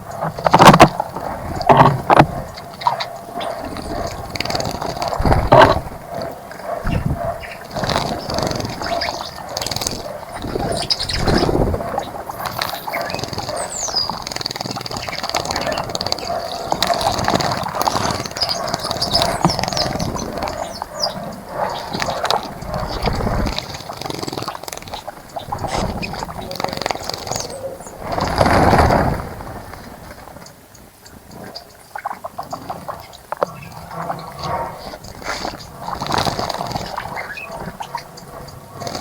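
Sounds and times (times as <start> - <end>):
birds splashing water: 0.0 - 39.0
high bird chirps: 10.3 - 16.6.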